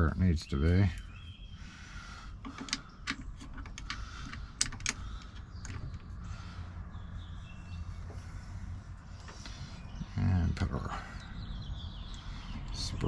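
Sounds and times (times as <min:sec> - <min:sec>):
steady low hum: 0:00.0 - 0:13.0
lock parts clicking: 0:02.4 - 0:06.2.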